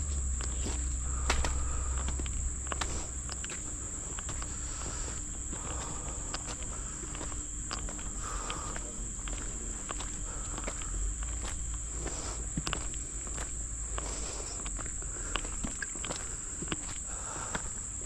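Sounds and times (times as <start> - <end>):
footsteps on a trail: 0.0 - 18.0
forest insects droning: 0.0 - 18.0.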